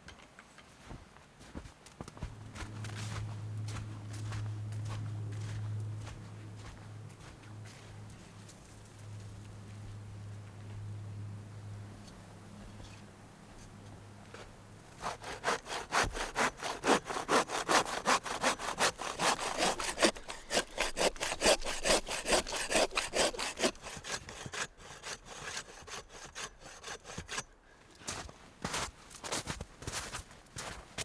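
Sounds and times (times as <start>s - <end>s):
low steady hum: 2.2s - 16.6s
handsaw cutting through log: 14.8s - 27.5s.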